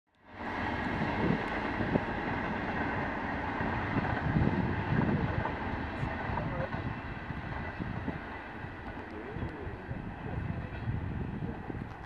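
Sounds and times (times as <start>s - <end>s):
vehicle rumble and hiss: 0.2s - 12.0s.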